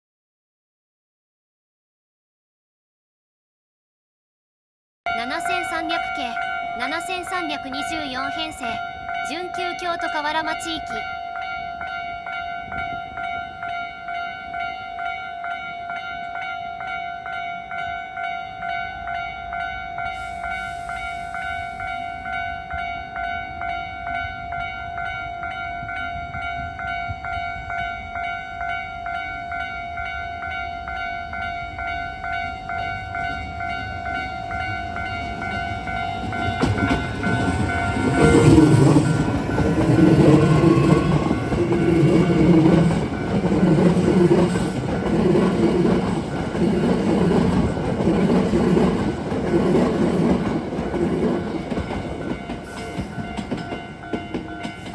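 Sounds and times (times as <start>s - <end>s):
level crossing bell ringing: 5.1s - 12.4s, 23.4s - 48.0s
train wheels clattering: 35.0s - 54.9s.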